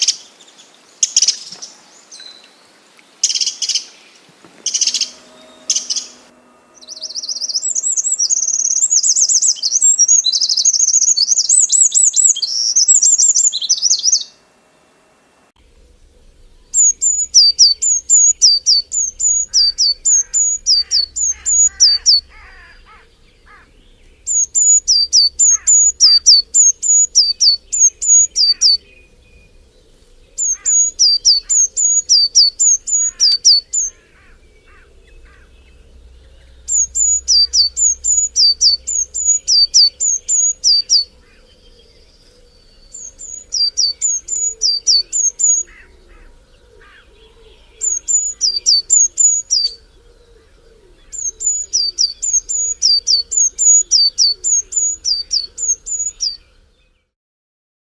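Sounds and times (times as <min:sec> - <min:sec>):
faint calls of other birds: 0:00.0 - 0:15.0, 0:15.6 - 0:57.1
bird two-note call: 0:04.6 - 0:10.8, 0:16.8 - 0:26.5.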